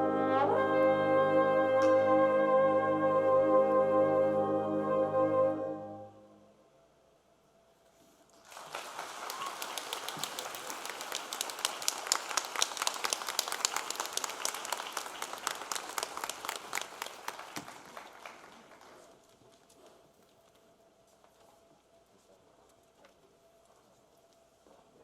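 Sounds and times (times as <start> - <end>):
audience applause: 8.4 - 19.2.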